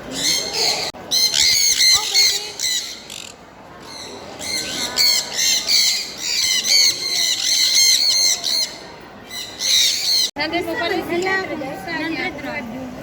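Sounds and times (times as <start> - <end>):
birds calling rapidly: 0.0 - 10.4.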